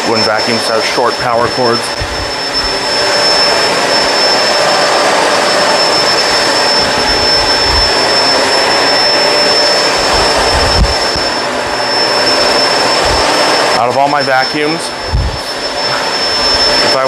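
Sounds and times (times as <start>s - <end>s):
upright vacuum cleaner running: 0.0s - 17.0s
low thumps of vacuum pushed: 1.4s - 2.4s.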